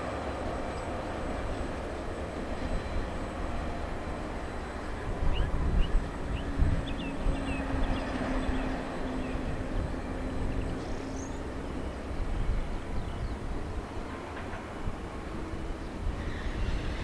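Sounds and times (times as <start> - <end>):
train rumbling: 0.0 - 17.0
birds chirping: 4.8 - 13.6.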